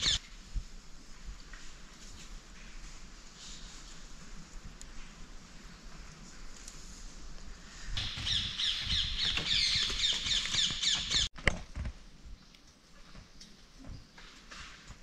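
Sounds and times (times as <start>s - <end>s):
forest background: 0.0s - 15.0s
bird chirping rapidly: 8.0s - 11.3s.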